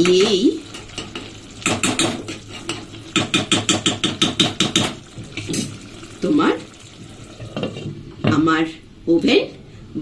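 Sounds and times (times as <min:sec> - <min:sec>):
low frying sizzle: 0:00.0 - 0:08.6
spatula scraping metal pot: 0:00.8 - 0:05.7.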